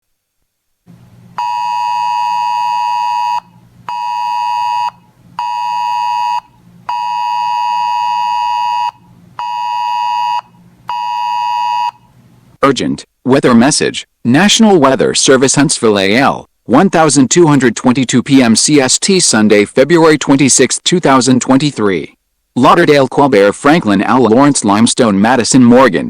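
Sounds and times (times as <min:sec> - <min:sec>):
radio alert beeper: 0:01.4 - 0:12.0.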